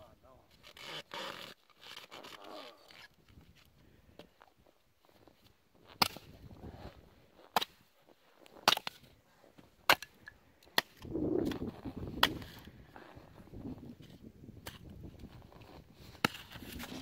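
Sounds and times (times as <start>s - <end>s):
axe chopping firewood: 5.9s - 6.4s, 7.5s - 7.9s, 8.6s - 9.1s, 9.8s - 12.6s, 16.1s - 17.0s.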